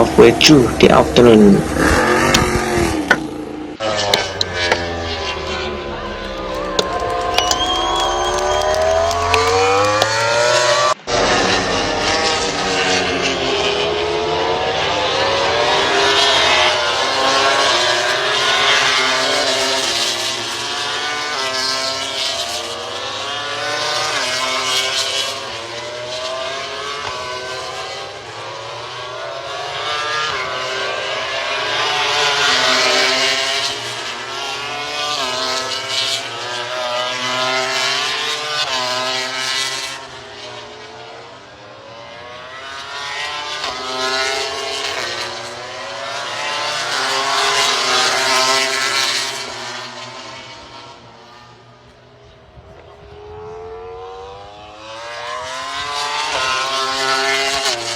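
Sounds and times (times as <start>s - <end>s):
racing motorcycle engines at full throttle: 0.0s - 57.9s.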